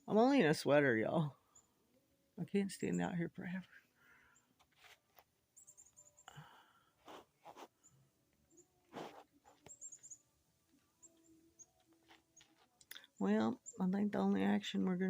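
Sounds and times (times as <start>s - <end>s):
high small-bird chirps: 5.6s - 6.3s, 9.6s - 10.3s
brief rustle: 8.9s - 10.1s.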